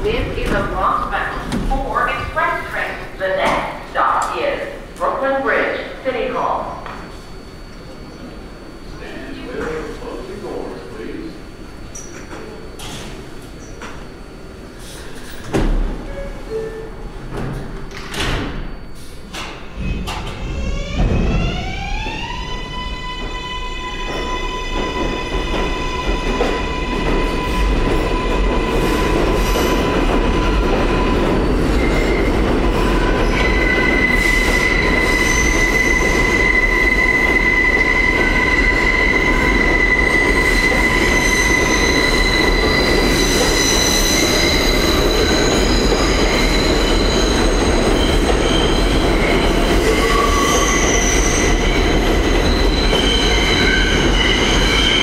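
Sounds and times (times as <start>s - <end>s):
subway train rumble: 0.0s - 55.0s
train wheels squealing: 19.8s - 55.0s.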